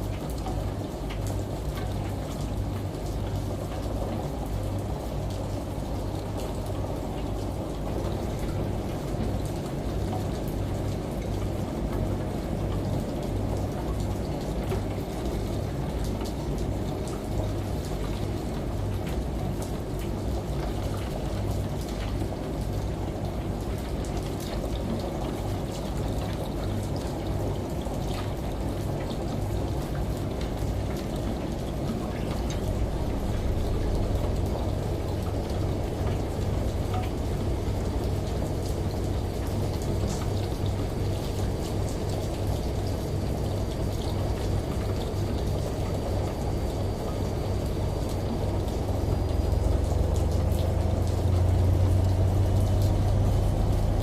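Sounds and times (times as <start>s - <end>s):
rain: 0.0s - 54.0s
washing machine: 0.0s - 54.0s
water running from a shower: 0.0s - 54.0s
water drops ticking: 32.4s - 42.2s, 43.7s - 54.0s.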